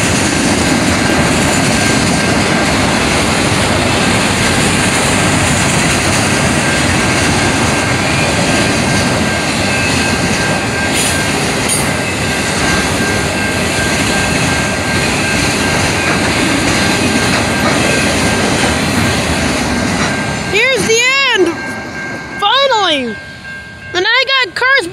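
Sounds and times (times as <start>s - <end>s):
freight train wheels rumbling: 0.0s - 24.9s.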